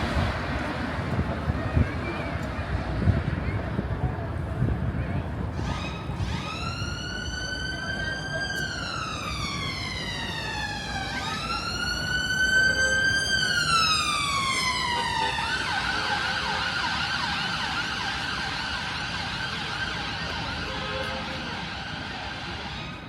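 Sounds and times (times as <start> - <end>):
emergency vehicle siren: 5.3 - 23.0.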